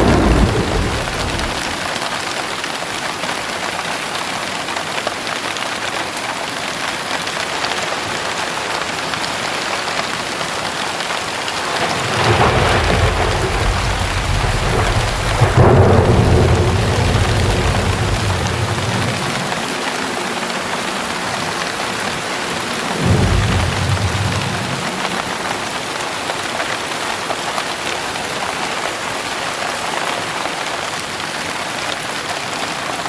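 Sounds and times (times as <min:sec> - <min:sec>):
thunder rumbling: 0:00.0 - 0:02.2, 0:11.2 - 0:26.2
heavy rain falling: 0:00.0 - 0:33.0.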